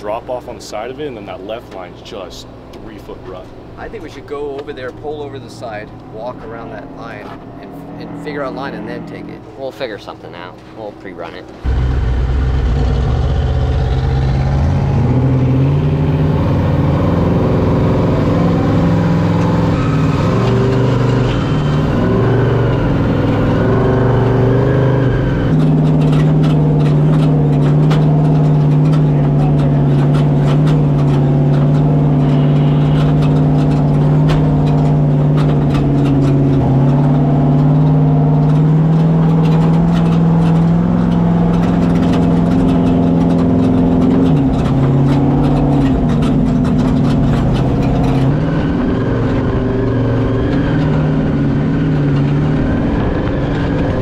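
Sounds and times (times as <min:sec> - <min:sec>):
truck engine revving: 0:11.6 - 0:54.0
truck rattling over rough track: 0:11.6 - 0:54.0.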